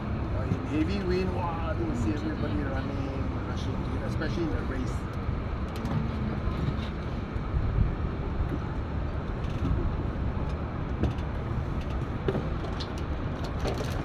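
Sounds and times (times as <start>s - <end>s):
wind rumble on microphone: 4.7s - 14.0s.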